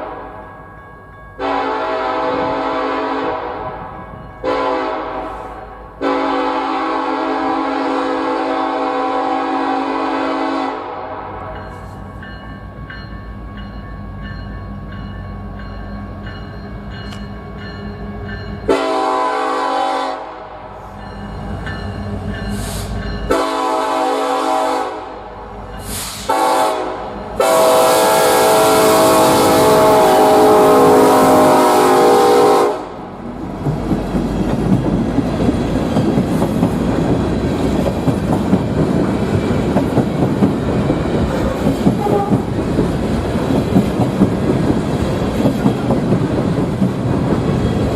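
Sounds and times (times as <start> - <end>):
train air horn blasts: 1.4 - 3.8, 4.4 - 11.6, 18.7 - 20.8, 22.6 - 33.1, 42.0 - 42.5
diesel locomotive engine running: 20.5 - 47.9
train wheels clattering over rail joints: 33.4 - 47.9.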